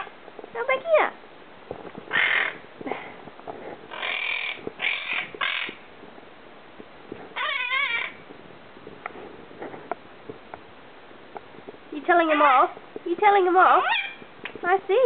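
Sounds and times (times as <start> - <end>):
parakeet squawks: 2.1 - 2.6, 3.9 - 5.8, 7.4 - 8.2, 13.7 - 14.2
parakeet warbling call: 2.1 - 2.6, 3.9 - 5.8, 7.4 - 8.2, 13.7 - 14.2.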